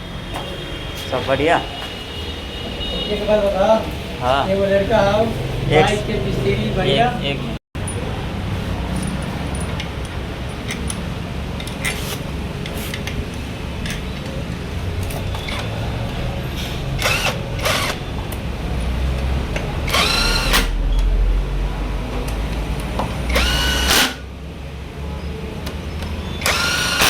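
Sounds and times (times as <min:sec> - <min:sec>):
workshop noise: 0:00.0 - 0:27.0
drill-like whine: 0:17.0 - 0:18.0, 0:19.9 - 0:20.8, 0:23.3 - 0:24.2, 0:26.4 - 0:27.0
power tool bursts: 0:17.0 - 0:18.0, 0:19.9 - 0:20.8, 0:23.3 - 0:24.2, 0:26.4 - 0:27.0.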